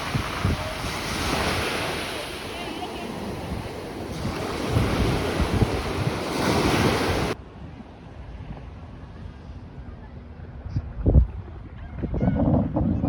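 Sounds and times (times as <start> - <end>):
sea waves washing onto beach: 0.0 - 7.4
wind buffeting microphone: 0.0 - 13.0.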